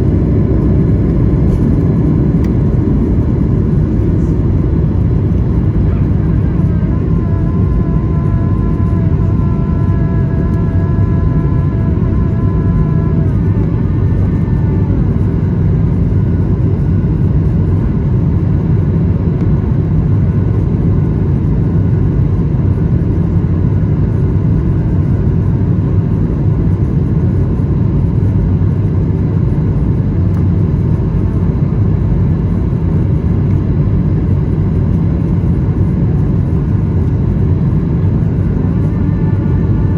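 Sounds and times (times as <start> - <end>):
whining engine tones: 0.0 - 17.7, 35.8 - 39.9
jet engines rumbling: 0.0 - 39.9.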